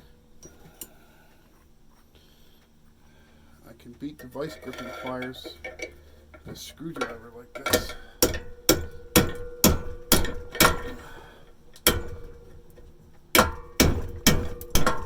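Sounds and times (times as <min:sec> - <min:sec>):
metal ringing: 0:04.2 - 0:11.2, 0:13.4 - 0:15.0
screwdriver striking metal pliers: 0:07.0 - 0:11.0.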